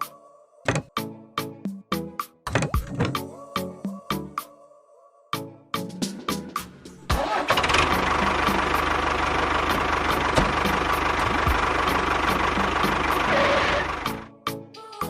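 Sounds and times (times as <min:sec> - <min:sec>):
small engine running: 0:07.2 - 0:14.2.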